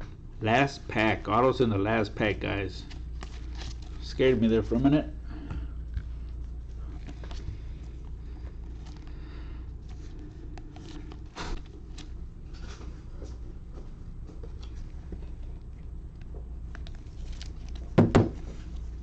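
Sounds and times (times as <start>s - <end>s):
cards and packaging rustling: 2.7s - 4.9s, 6.9s - 9.2s, 9.8s - 13.3s, 16.6s - 19.0s.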